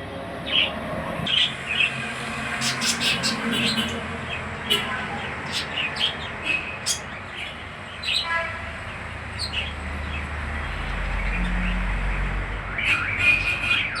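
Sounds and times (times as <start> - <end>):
small birds chirping: 1.3 - 8.3.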